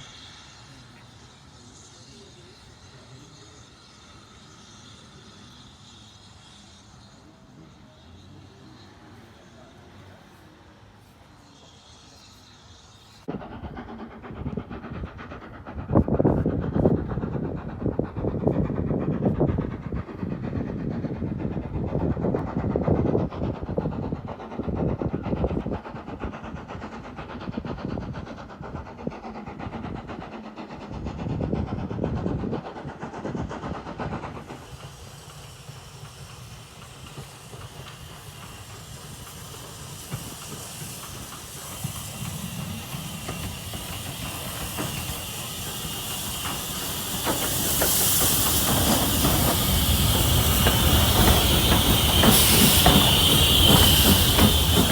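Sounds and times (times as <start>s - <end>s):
hiss of steam: 0.0s - 54.9s
steam train rumbling on rails: 0.0s - 54.9s
wheels clacking over rail joints: 36.0s - 54.9s.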